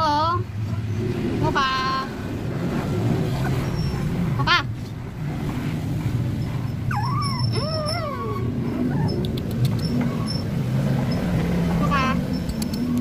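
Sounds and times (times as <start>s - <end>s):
puppy whining: 6.4s - 10.5s
puppy yipping: 6.7s - 10.5s.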